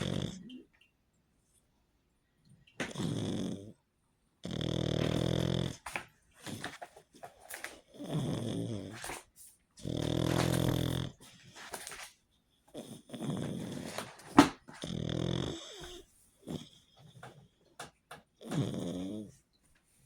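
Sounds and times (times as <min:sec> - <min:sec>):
dog snorting: 0:00.0 - 0:00.6, 0:02.8 - 0:03.8, 0:04.4 - 0:09.2, 0:09.8 - 0:12.0, 0:12.7 - 0:17.4
dog snoring: 0:00.0 - 0:00.7, 0:02.8 - 0:03.8, 0:04.4 - 0:06.8, 0:07.5 - 0:11.9, 0:12.7 - 0:17.5, 0:18.3 - 0:19.4.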